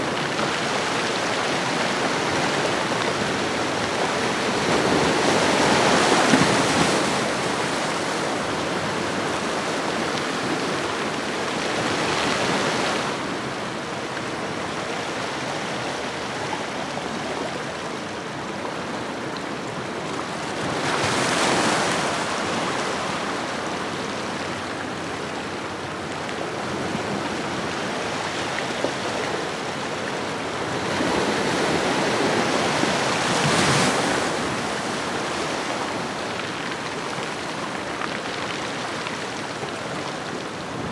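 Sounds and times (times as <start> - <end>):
ocean waves on shoreline: 20.6 - 40.9.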